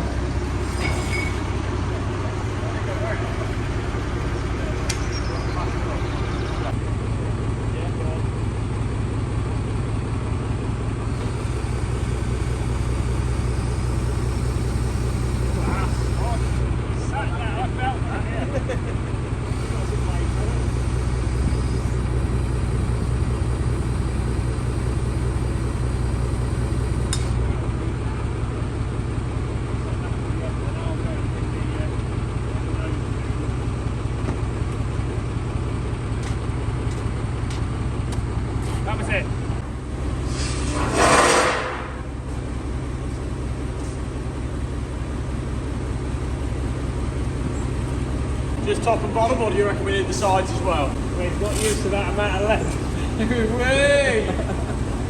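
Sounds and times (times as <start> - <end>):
heavy engine idling: 0.0 - 55.0
loud burst of noise: 11.1 - 16.7, 19.5 - 27.4, 50.2 - 55.0.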